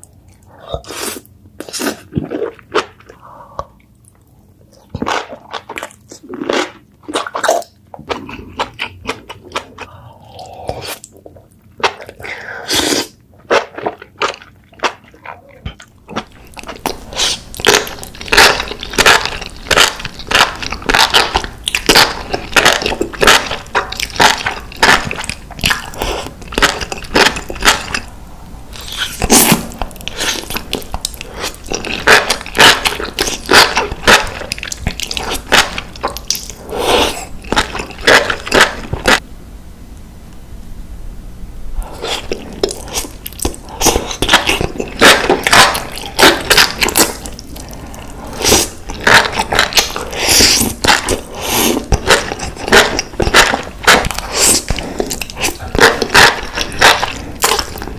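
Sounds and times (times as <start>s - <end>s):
biting and chewing mushrooms: 11.8s - 28.1s, 28.7s - 39.2s, 42.0s - 57.9s.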